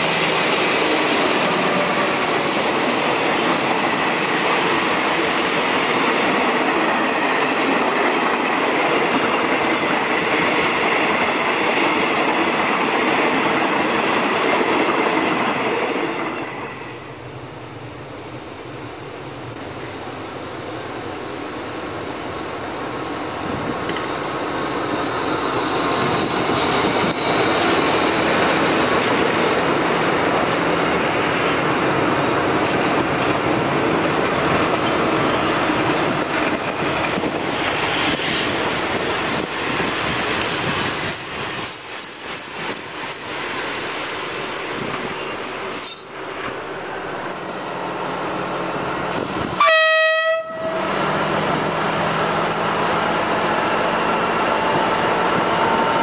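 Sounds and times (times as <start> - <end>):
train carriages rumbling past: 0.0 - 56.0
train wheel squeal: 19.7 - 33.8, 34.7 - 38.7, 40.1 - 44.0, 44.7 - 46.7
locomotive horn: 49.6 - 51.0.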